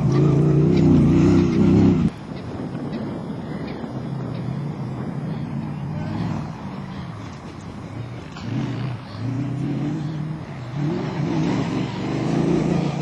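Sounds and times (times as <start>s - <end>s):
car engine revving hard: 8.4s - 13.0s.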